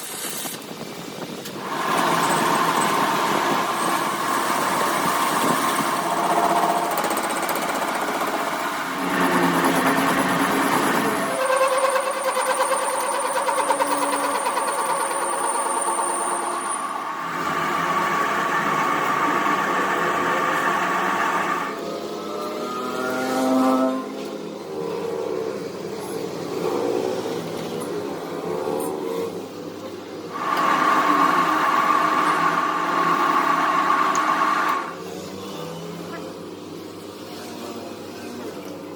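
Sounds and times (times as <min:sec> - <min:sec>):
workshop machine humming: 0:01.5 - 0:22.5, 0:29.4 - 0:35.0
high whine: 0:07.9 - 0:24.4.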